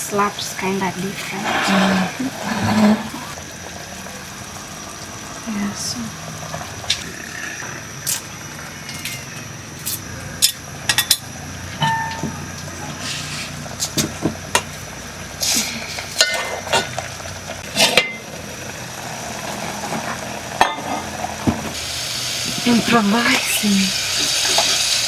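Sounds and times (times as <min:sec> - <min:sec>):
pots and pans clinking: 0:08.1 - 0:12.7, 0:15.4 - 0:18.4, 0:19.4 - 0:25.0.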